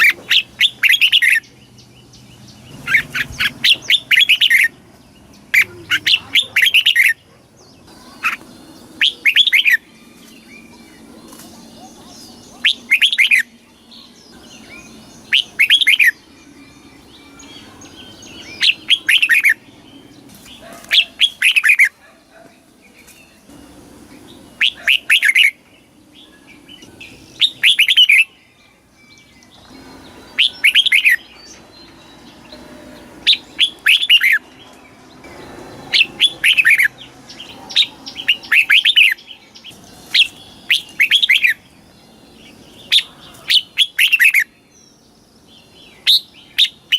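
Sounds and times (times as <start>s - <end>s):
bird warbling: 2.7s - 13.6s, 14.4s - 19.7s, 24.5s - 25.6s, 26.8s - 28.4s, 29.7s - 31.6s, 32.2s - 34.5s, 35.3s - 41.6s, 42.5s - 44.5s.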